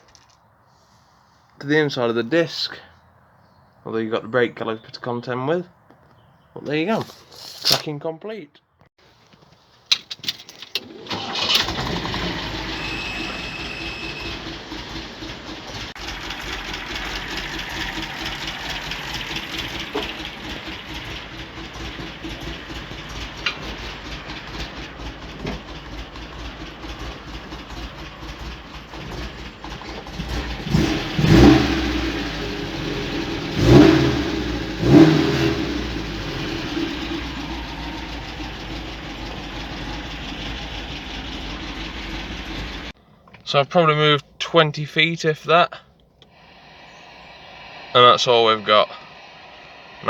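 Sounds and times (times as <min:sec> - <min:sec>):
car engine starting and running: 0:10.8 - 0:43.0, 0:46.2 - 0:50.0.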